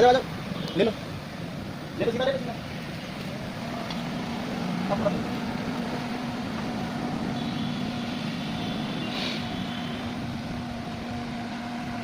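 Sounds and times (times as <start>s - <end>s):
car engine droning: 0.0s - 12.0s
brief hiss: 9.0s - 9.6s.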